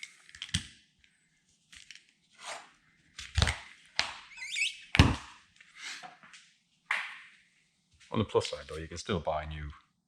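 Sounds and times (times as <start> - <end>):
knife slicing rubber seal: 2.4 - 3.7
rubbery squeak: 4.3 - 5.1.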